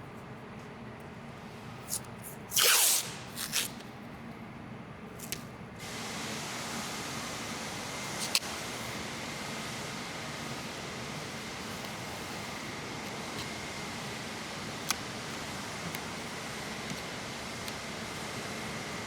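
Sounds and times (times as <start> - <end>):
air gun hissing: 1.9 - 3.8.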